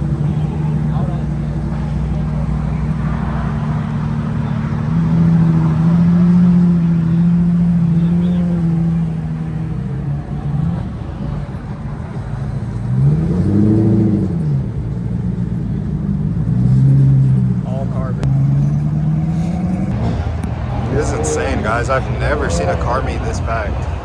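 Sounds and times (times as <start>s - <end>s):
car engine running and revving: 0.0s - 24.0s.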